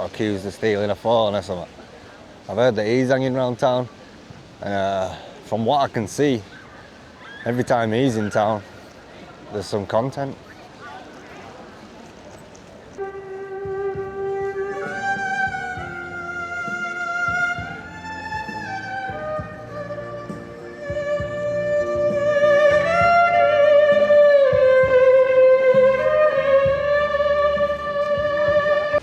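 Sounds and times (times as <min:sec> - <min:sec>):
low musical backing: 0:13.0 - 0:29.0
violin playing slow melody: 0:13.0 - 0:29.0.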